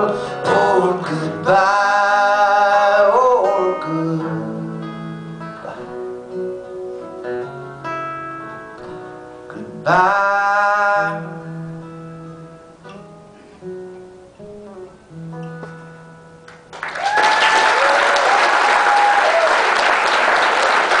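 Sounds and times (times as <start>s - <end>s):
soft guitar notes: 3.4s - 10.1s, 11.1s - 16.7s
audience applause: 16.7s - 21.0s
audience whooping: 16.8s - 21.0s.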